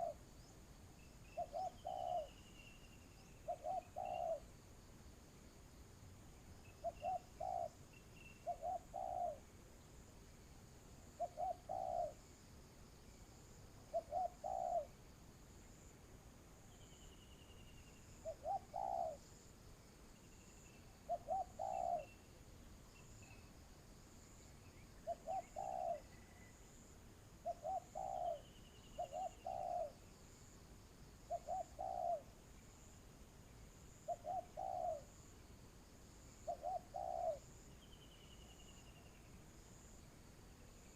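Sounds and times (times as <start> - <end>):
dove cooing: 0.0 - 0.2, 1.3 - 2.4, 3.3 - 4.5, 6.8 - 7.8, 8.4 - 9.5, 11.2 - 12.2, 13.9 - 14.9, 18.2 - 19.2, 21.1 - 22.2, 25.0 - 26.5, 27.4 - 30.0, 31.3 - 32.4, 34.1 - 35.2, 36.4 - 37.5
faint bird chirps: 0.0 - 4.6, 6.3 - 10.0, 10.9 - 12.4, 13.0 - 15.0, 16.6 - 19.5, 20.1 - 30.4, 31.2 - 35.6, 36.2 - 40.9.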